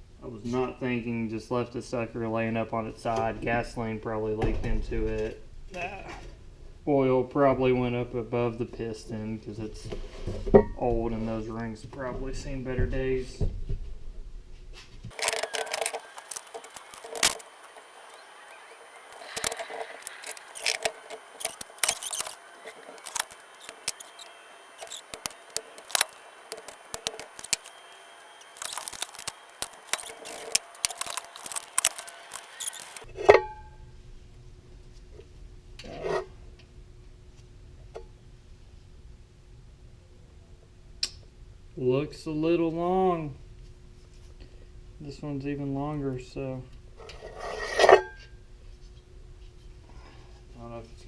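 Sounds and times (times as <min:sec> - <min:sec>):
metal parts and tools clinking: 0:15.1 - 0:33.0.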